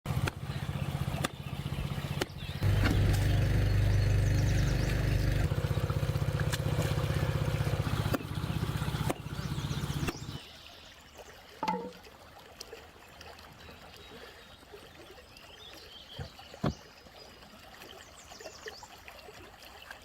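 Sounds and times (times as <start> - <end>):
small engine pulsing: 0.1 - 10.4.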